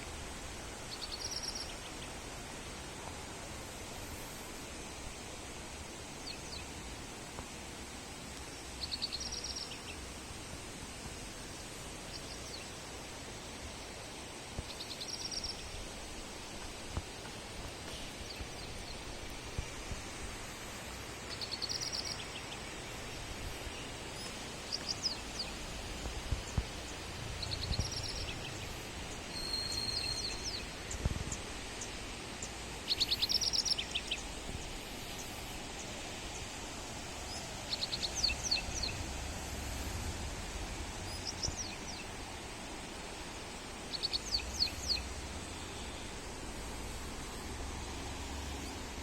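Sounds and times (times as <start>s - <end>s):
steady outdoor hiss: 0.0s - 49.0s
birds chirping: 23.8s - 36.5s.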